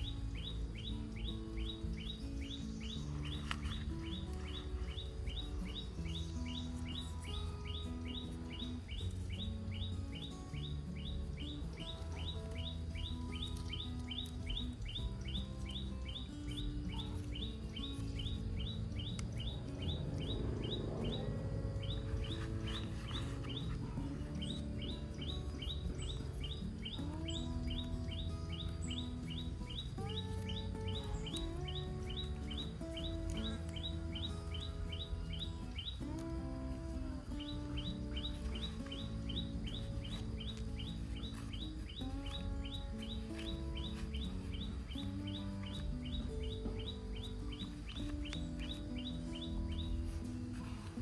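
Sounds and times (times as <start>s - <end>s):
rapid repeated bird chirp: 0.0s - 51.0s
soft background music: 0.0s - 51.0s.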